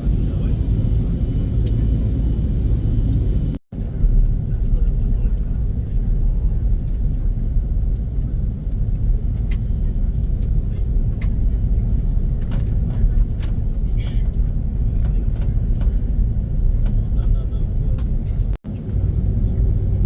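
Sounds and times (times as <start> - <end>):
airliner cabin rumble: 0.0 - 20.0.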